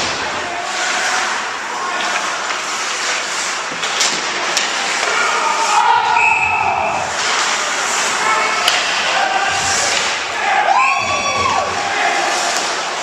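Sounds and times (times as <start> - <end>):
indoor game in echoing hall: 0.0 - 13.0.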